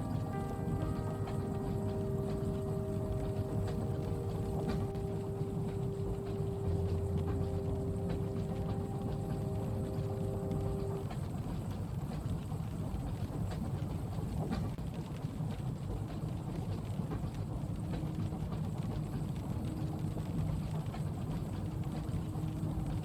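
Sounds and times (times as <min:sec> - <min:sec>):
steady hum: 0:00.0 - 0:12.2
moving train rumble: 0:00.0 - 0:23.0.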